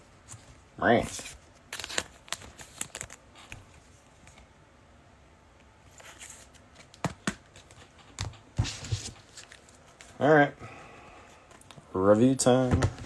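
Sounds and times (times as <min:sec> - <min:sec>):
rustling of trading cards: 0:00.1 - 0:04.5, 0:05.8 - 0:13.0
cards tapped on a table: 0:07.0 - 0:07.4.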